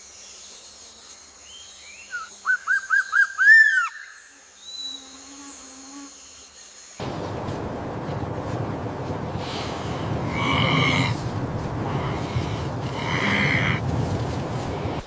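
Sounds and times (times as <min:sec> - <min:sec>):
steady rushing noise: 0:07.0 - 0:15.0
bird calling: 0:09.4 - 0:15.0.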